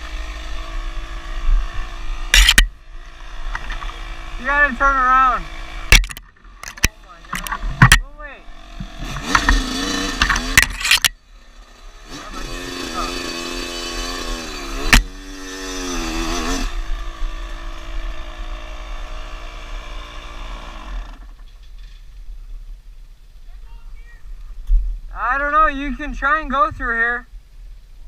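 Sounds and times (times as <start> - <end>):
dirt bike engine revving: 0.0 - 21.4.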